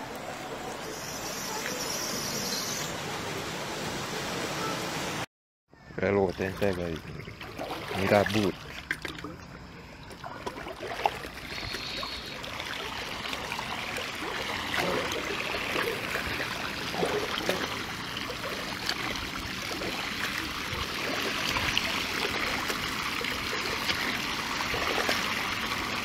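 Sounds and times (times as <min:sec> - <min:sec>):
floodwater rushing: 0:00.0 - 0:05.3, 0:06.4 - 0:09.4, 0:10.1 - 0:26.0
small water splashes: 0:06.3 - 0:26.0.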